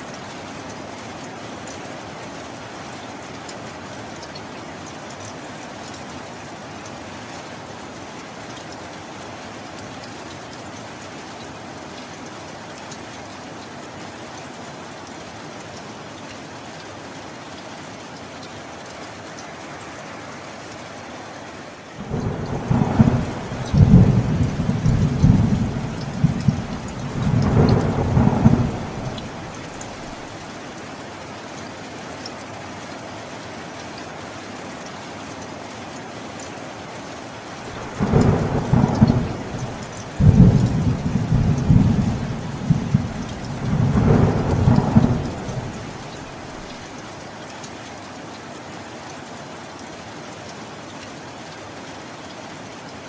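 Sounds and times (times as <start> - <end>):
heavy rain: 0.0 - 53.0
thunder rumbling: 22.0 - 30.4, 37.7 - 46.9.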